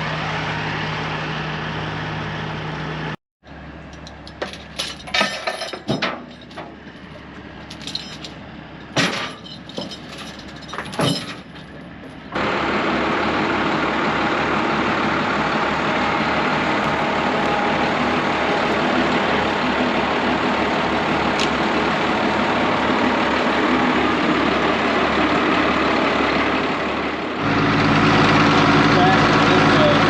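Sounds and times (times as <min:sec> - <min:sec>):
large vehicle engine running: 0:00.0 - 0:30.0
metallic clanks and knocks: 0:03.9 - 0:12.4.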